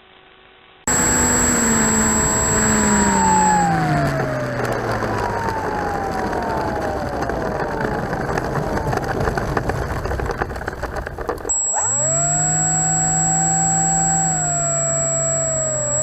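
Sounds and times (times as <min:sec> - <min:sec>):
model plane motor and propeller: 0:00.9 - 0:16.0
thin high tone: 0:11.5 - 0:16.0.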